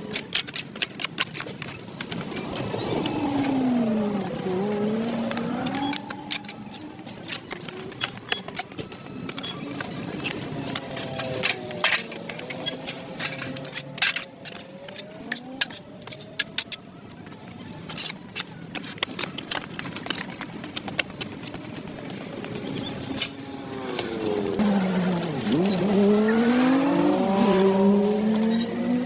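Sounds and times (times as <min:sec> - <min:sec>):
vehicle approaching: 0:02.0 - 0:08.0, 0:22.1 - 0:29.0.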